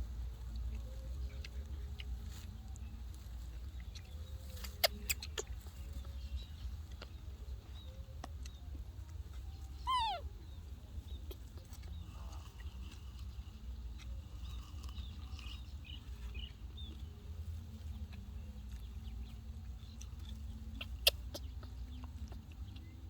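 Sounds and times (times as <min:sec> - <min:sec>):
baby monkey squealing: 0:09.8 - 0:10.3.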